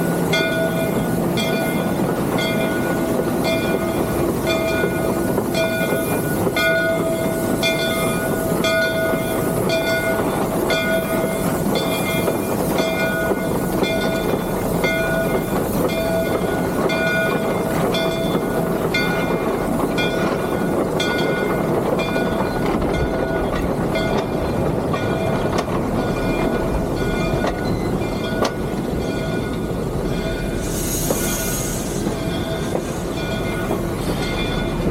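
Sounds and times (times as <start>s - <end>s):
locomotive bell ringing: 0.0s - 34.9s
steam locomotive running: 0.0s - 34.9s.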